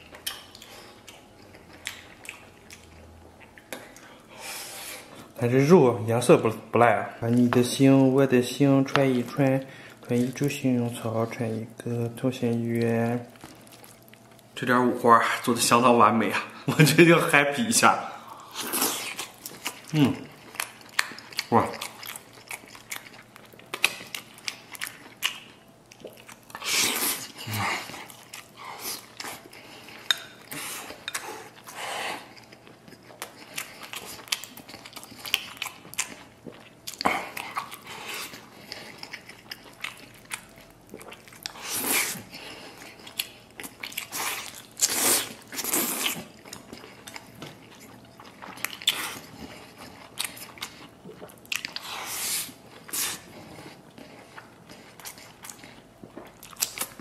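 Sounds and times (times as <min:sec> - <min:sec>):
man chewing and biting: 0:00.0 - 0:05.3, 0:18.3 - 0:57.0.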